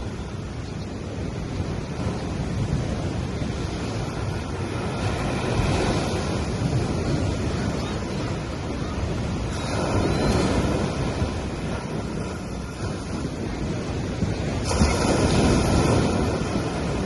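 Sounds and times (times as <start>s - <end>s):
sea waves washing onto sand: 0.0s - 17.0s.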